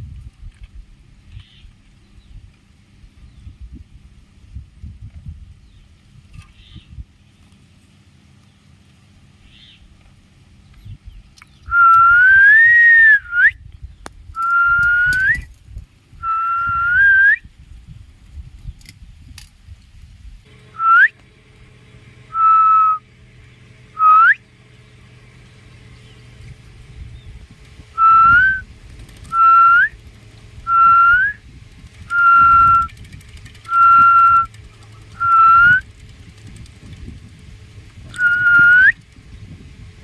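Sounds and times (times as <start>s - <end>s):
whistled notes: 11.7s - 13.6s, 14.4s - 15.5s, 16.2s - 17.4s, 20.7s - 21.2s, 22.3s - 23.0s, 24.0s - 24.4s, 28.0s - 30.0s, 30.6s - 31.4s, 32.0s - 33.0s, 33.7s - 34.5s, 35.1s - 35.9s, 38.1s - 39.0s.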